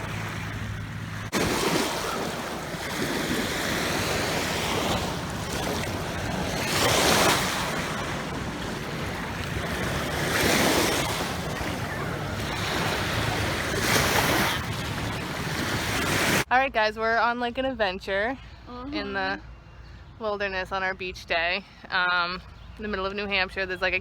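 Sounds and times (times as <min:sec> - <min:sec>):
waves breaking on beach: 0:00.0 - 0:16.5
wind buffeting microphone: 0:00.0 - 0:16.5.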